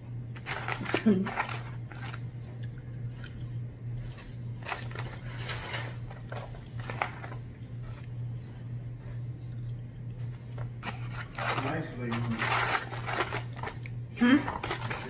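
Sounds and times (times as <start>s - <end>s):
steady low hum: 0.0s - 15.0s
person chewing french fries: 0.3s - 8.4s, 9.1s - 15.0s
paper liner rustling: 0.4s - 2.2s, 4.0s - 7.4s, 10.6s - 15.0s.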